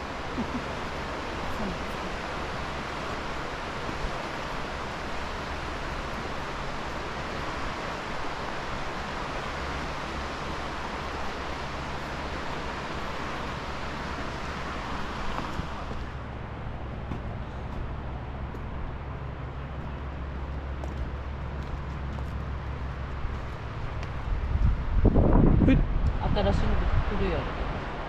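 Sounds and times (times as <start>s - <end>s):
river water rushing: 0.0s - 25.3s, 25.9s - 28.0s.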